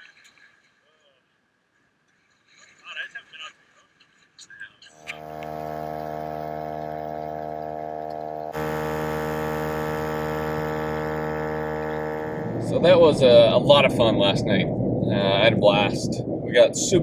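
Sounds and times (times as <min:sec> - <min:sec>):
steady hum with overtones: 0:05.0 - 0:17.0.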